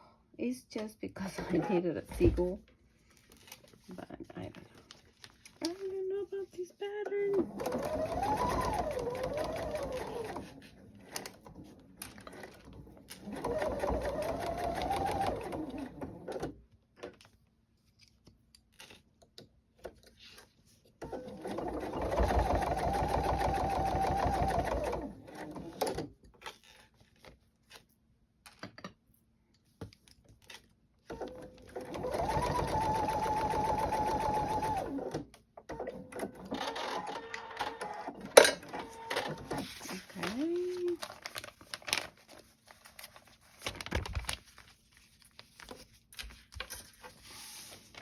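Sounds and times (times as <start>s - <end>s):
small clicks and handling noises: 3.1s - 3.9s, 4.5s - 6.0s, 17.0s - 21.0s, 26.2s - 30.8s
sewing machine motor whine: 7.5s - 10.5s, 21.1s - 25.8s.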